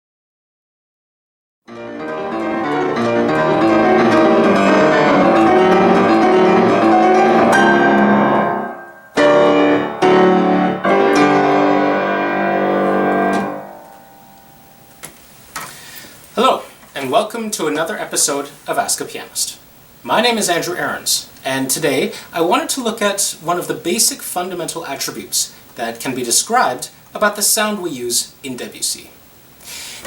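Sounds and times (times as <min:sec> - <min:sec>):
solo piano playing: 0:01.7 - 0:15.0.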